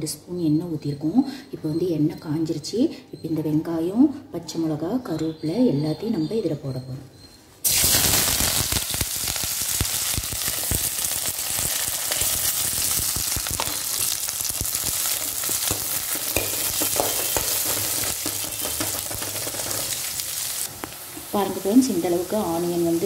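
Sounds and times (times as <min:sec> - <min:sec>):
onions sizzling in hot oil: 0:07.6 - 0:23.0.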